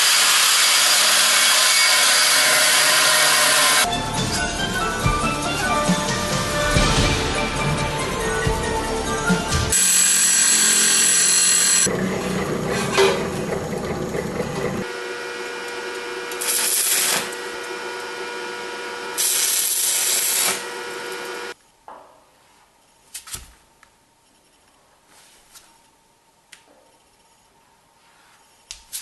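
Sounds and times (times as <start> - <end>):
power tool running: 0.0 - 3.9, 9.7 - 21.6.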